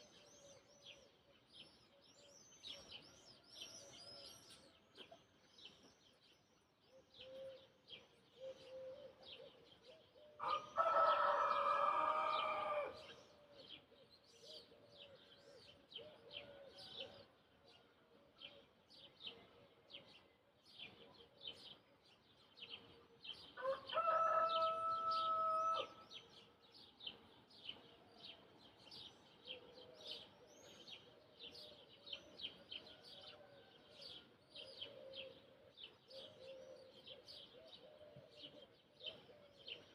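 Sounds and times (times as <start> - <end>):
rooster crowing: 10.4 - 13.0, 23.6 - 26.0.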